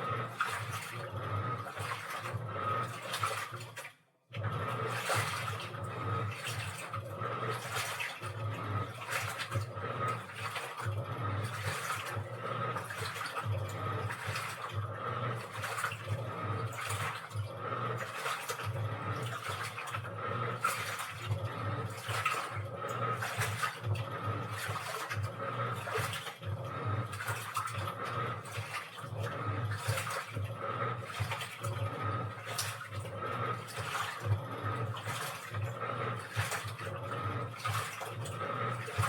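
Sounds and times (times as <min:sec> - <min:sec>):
low motor hum: 0:00.0 - 0:03.5, 0:04.4 - 0:39.0
water sloshing in washing machine: 0:00.0 - 0:39.0.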